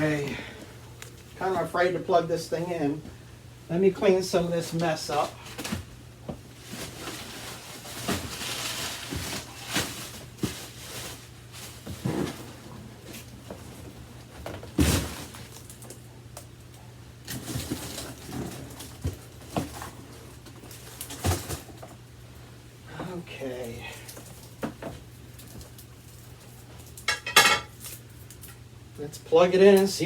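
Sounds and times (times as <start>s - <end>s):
objects knocking and clattering: 27.0s - 27.8s.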